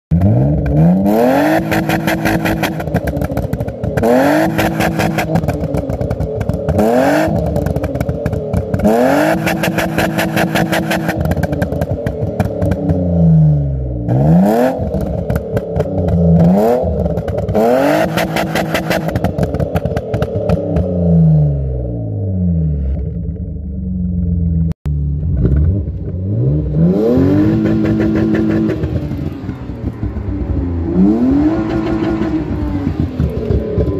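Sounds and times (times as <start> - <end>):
car engine revving on limiter: 0.1 - 23.1, 25.2 - 33.9
exhaust pops and crackles: 1.6 - 13.1, 14.8 - 21.0, 31.7 - 33.9.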